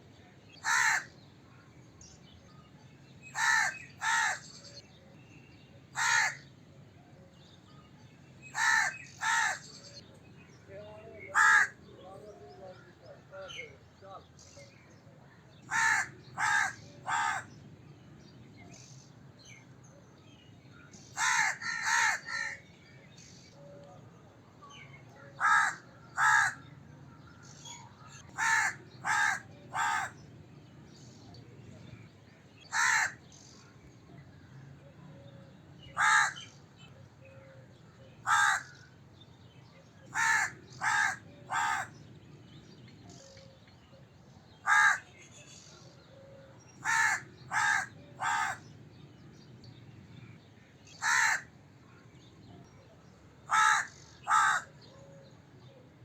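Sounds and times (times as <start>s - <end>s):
crow cawing: 0.6s - 1.1s, 3.3s - 4.4s, 6.0s - 6.4s, 8.5s - 9.6s, 11.3s - 11.8s, 15.7s - 17.5s, 21.2s - 22.6s, 25.4s - 26.6s, 28.3s - 30.2s, 32.7s - 33.2s, 36.0s - 36.5s, 38.2s - 38.8s, 40.1s - 42.0s, 44.6s - 45.0s, 46.8s - 48.6s, 51.0s - 51.5s, 53.5s - 54.8s.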